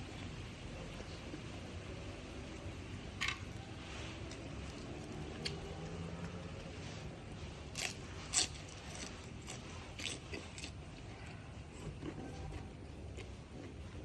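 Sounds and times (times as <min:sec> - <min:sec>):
person chewing: 0:04.2 - 0:14.0.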